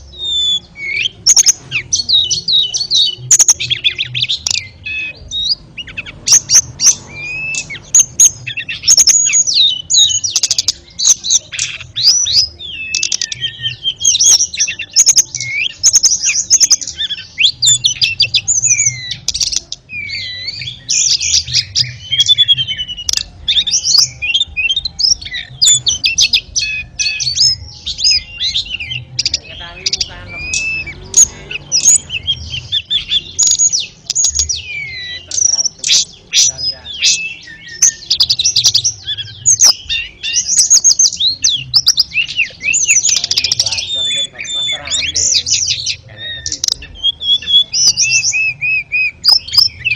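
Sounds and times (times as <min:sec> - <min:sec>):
songbird singing: 0:00.0 - 0:49.9.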